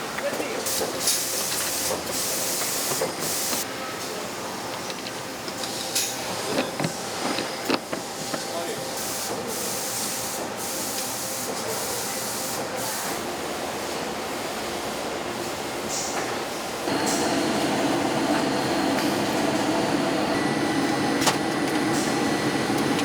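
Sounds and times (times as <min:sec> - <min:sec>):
factory machinery running: 0:00.2 - 0:23.0
high air hissing bursts: 0:16.9 - 0:20.5.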